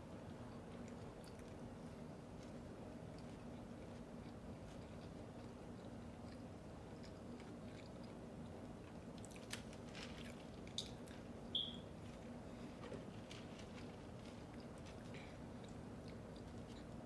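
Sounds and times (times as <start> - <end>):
person chewing food: 0.2 - 9.6, 13.2 - 17.0
food crunching: 0.3 - 11.3, 13.0 - 17.0.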